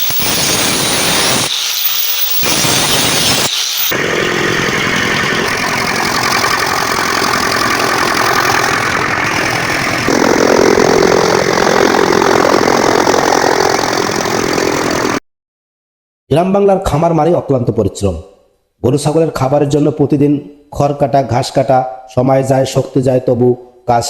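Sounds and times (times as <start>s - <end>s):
chaff cutter machine clattering: 3.9s - 13.0s.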